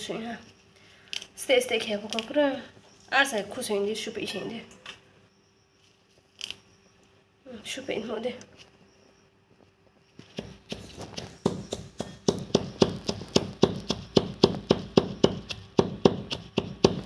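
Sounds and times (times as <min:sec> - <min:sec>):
knife chopping on cutting board: 0:10.4 - 0:17.0.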